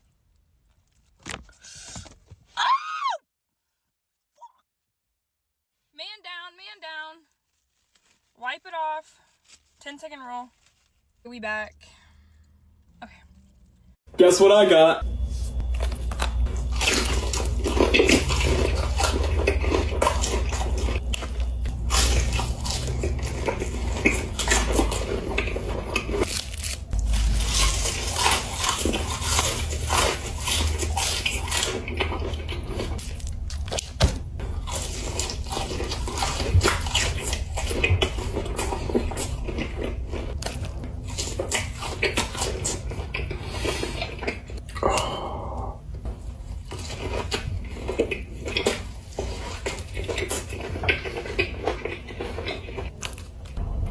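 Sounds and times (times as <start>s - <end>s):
crunching and chewing food: 7.3s - 8.4s, 12.1s - 53.9s.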